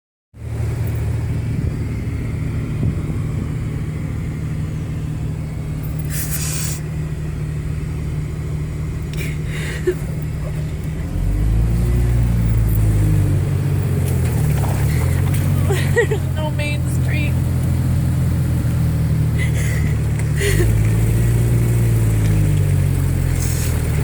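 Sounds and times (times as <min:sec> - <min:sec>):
vehicle engine rumbling: 0:00.4 - 0:24.0
brief hissing: 0:06.0 - 0:06.9.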